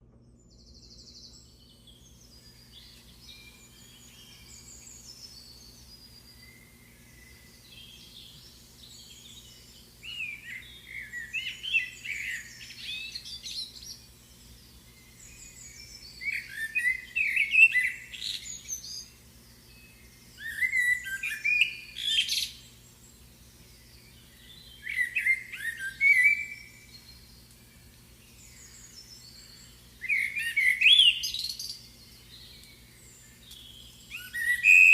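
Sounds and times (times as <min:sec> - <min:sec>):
songbird chirps and trills: 0:00.0 - 0:34.9.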